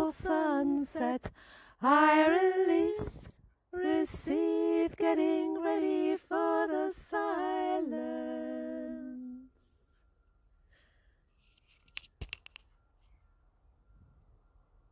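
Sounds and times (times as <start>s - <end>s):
person singing unaccompanied: 0.0s - 9.5s.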